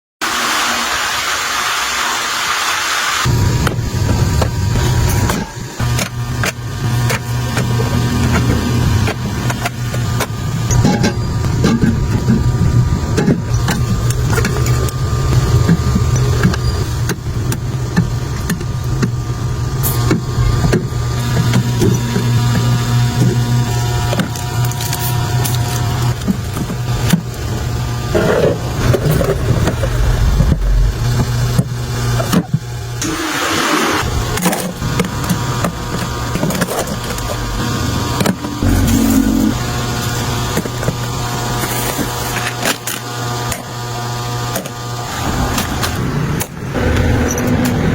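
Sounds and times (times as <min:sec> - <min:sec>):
steady low hum: 0:03.3 - 0:33.0, 0:35.9 - 0:42.3.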